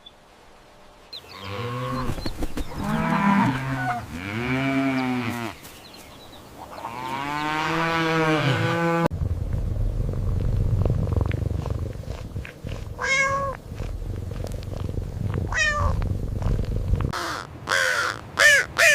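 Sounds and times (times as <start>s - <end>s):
cow mooing: 2.8s - 5.6s, 6.9s - 9.1s.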